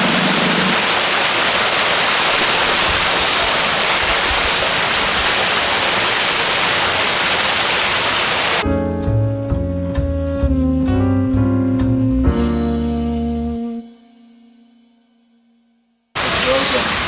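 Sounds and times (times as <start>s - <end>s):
rush of falling water: 0.0s - 8.6s, 16.2s - 17.0s.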